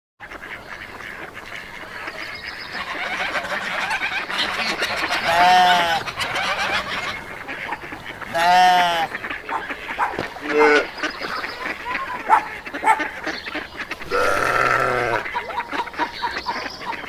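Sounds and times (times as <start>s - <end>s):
animal calls: 2.0s - 17.0s
sheep bleating: 5.2s - 6.0s, 8.2s - 9.2s, 10.4s - 10.9s, 14.0s - 15.3s.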